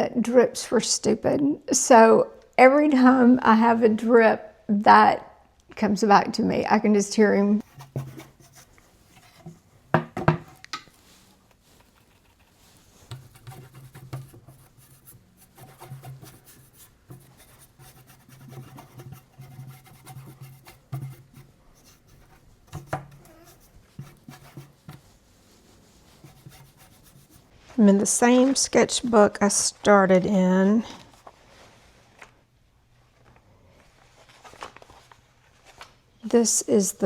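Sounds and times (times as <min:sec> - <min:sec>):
paintbrush scrubbing on panel: 0:07.6 - 0:09.7, 0:11.0 - 0:27.6.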